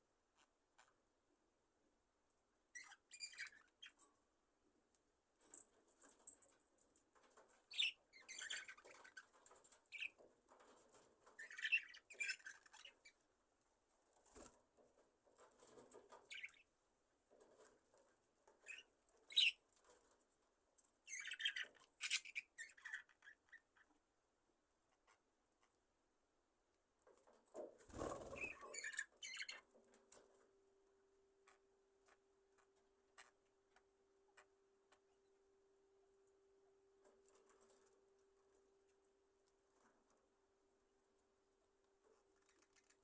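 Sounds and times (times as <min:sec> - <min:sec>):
budgerigars chirping and chattering: 0:02.8 - 0:04.0, 0:07.7 - 0:10.2, 0:11.4 - 0:13.2, 0:16.1 - 0:16.6, 0:18.6 - 0:19.6, 0:21.1 - 0:23.9, 0:28.0 - 0:29.7
wings and feathers rustling: 0:27.2 - 0:28.9.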